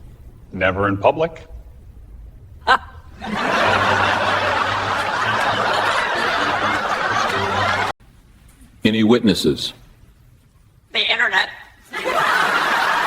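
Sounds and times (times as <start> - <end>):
crowd laughing: 2.7 - 8.0, 11.9 - 13.0.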